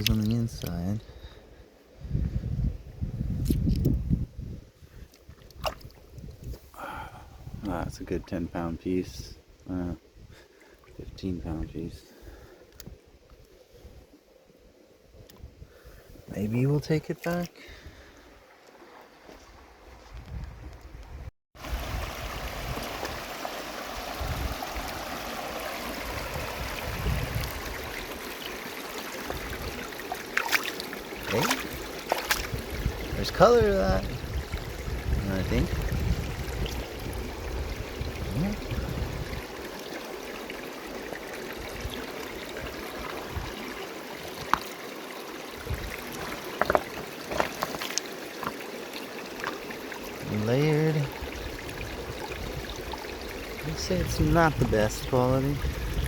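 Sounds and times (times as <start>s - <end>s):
river water running: 10.4s - 20.0s, 21.6s - 56.0s
river water rushing: 21.6s - 32.8s.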